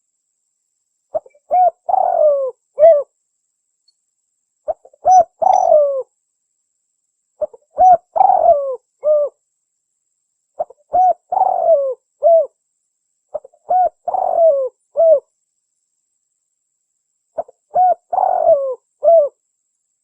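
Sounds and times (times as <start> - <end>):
dove cooing: 1.1 - 3.1, 4.7 - 6.1, 7.4 - 9.4, 10.6 - 12.6, 13.3 - 15.2, 17.4 - 19.4.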